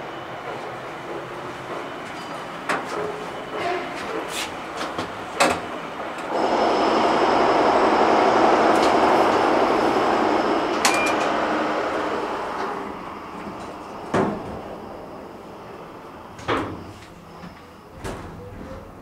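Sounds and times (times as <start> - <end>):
train rail noise rushing: 0.0 - 17.7
faint high whine: 6.3 - 18.0.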